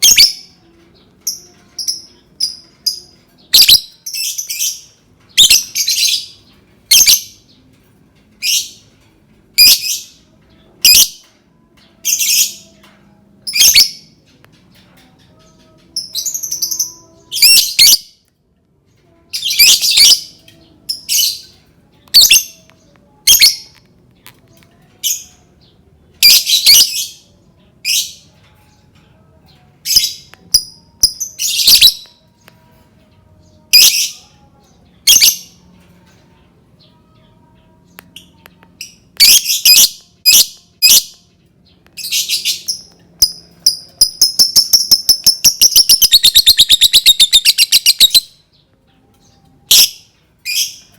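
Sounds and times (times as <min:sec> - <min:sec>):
lovebird shrill chirping: 0:42.4 - 0:48.3.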